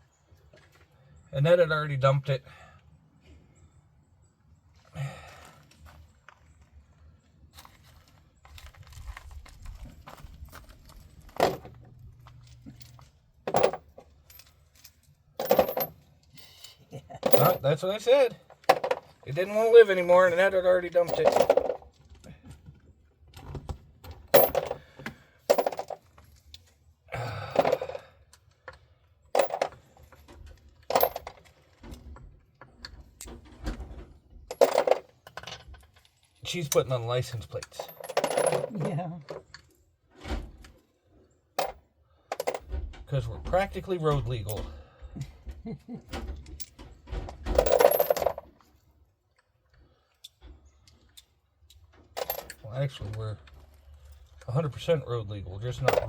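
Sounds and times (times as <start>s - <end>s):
metal tools clinking: 11.3s - 21.9s, 24.3s - 28.0s, 29.3s - 31.6s, 34.5s - 39.6s, 41.6s - 42.7s, 44.1s - 44.8s, 46.1s - 48.6s, 51.8s - 54.6s, 55.7s - 56.0s.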